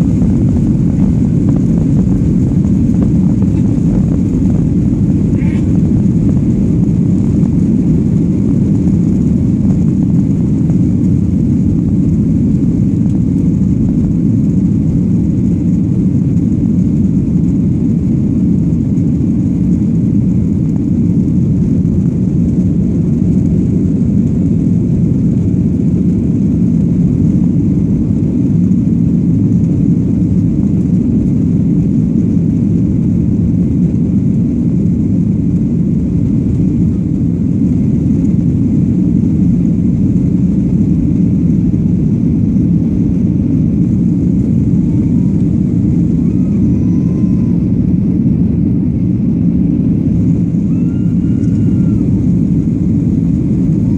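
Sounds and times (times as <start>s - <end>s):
airplane engines roaring: 0.0s - 53.9s.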